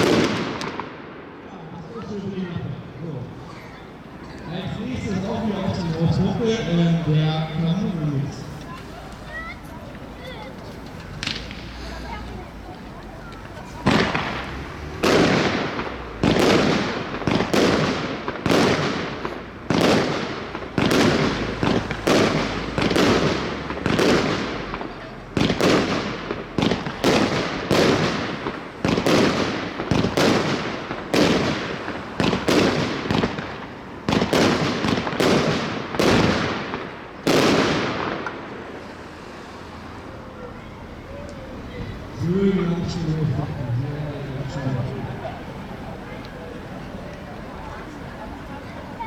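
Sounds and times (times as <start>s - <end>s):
firework battery firing shots: 0.0s - 1.4s, 9.9s - 39.6s.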